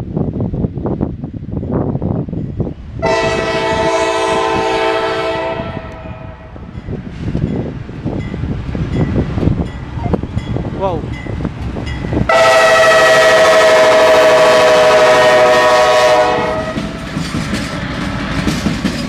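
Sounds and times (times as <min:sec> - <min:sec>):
freight train rumbling past: 0:00.0 - 0:19.0
locomotive air horn blast: 0:03.0 - 0:06.5, 0:12.3 - 0:17.0.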